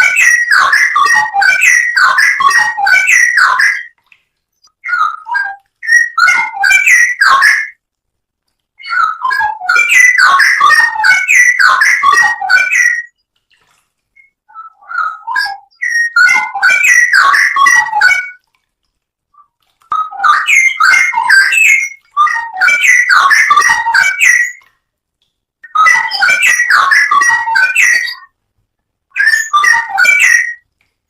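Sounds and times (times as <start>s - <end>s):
bird singing bubbling warbles: 0.0s - 7.8s, 8.8s - 13.4s, 14.1s - 18.4s, 19.4s - 24.7s, 29.2s - 30.6s.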